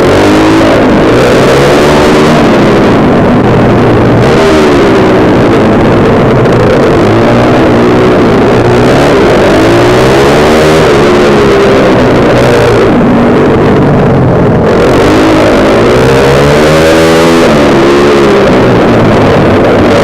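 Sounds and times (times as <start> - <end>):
kart engine revving: 0.0 - 20.0.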